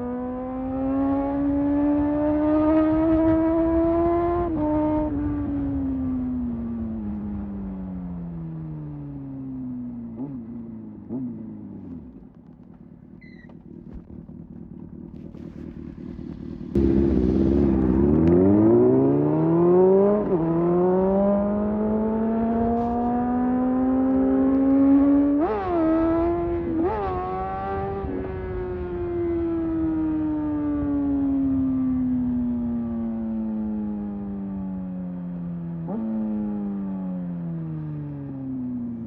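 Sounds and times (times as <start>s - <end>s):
motorcycle engine revving: 0.0s - 6.5s, 10.0s - 12.2s, 13.1s - 32.4s.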